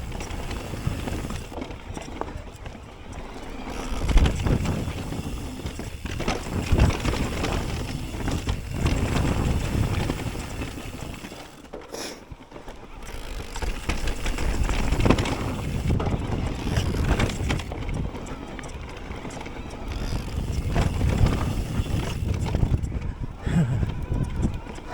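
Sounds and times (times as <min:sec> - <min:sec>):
bike knocking and rattling: 0:00.0 - 0:24.9
bike tyres on dirt: 0:00.0 - 0:24.9
wind rushing over microphone: 0:03.6 - 0:11.3, 0:13.7 - 0:24.9.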